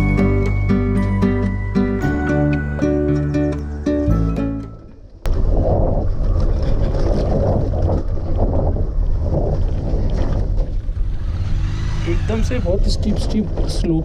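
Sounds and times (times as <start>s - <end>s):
wind rushing over microphone: 5.2s - 14.0s
motorcycle engine running: 10.9s - 14.0s.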